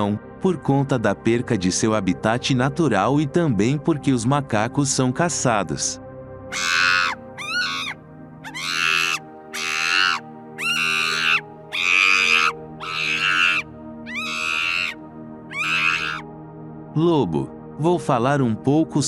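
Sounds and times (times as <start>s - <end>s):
background music: 0.0s - 19.0s
monkey screeching calls: 6.5s - 16.2s.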